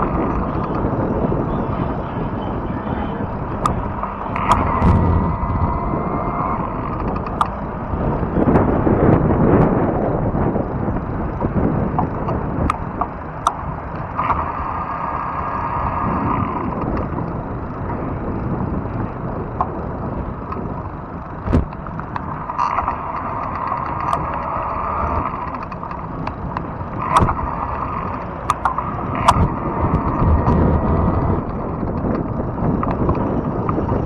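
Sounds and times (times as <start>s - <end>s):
high steady motor hum: 0.0s - 34.0s
wind rushing over microphone: 0.0s - 34.0s
sharp clicks and knocks: 3.6s - 5.5s, 6.8s - 7.7s, 12.0s - 13.6s, 25.2s - 30.6s
tyre rumble: 3.6s - 7.4s.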